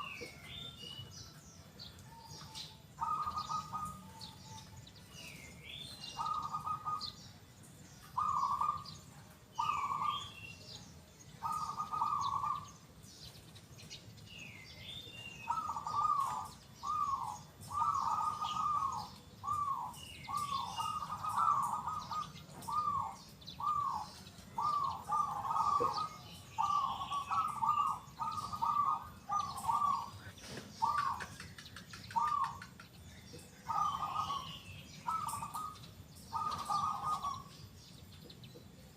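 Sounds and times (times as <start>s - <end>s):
small birds chirping: 0.0s - 38.9s
dove cooing: 2.0s - 7.3s, 8.0s - 10.7s, 11.4s - 12.9s, 15.4s - 32.9s, 33.5s - 37.7s.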